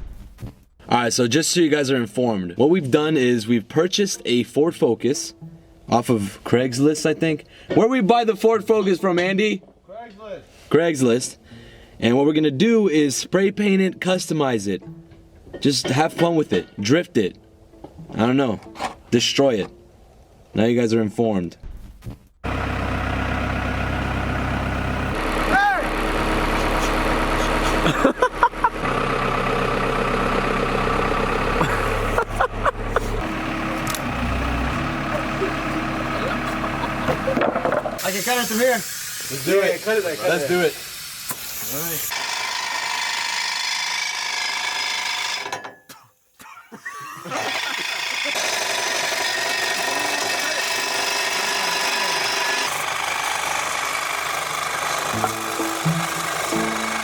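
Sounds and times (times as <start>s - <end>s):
car engine idling: 22.4s - 38.0s, 52.7s - 57.0s
power tool cutting metal pipe: 38.0s - 45.6s, 47.1s - 57.0s.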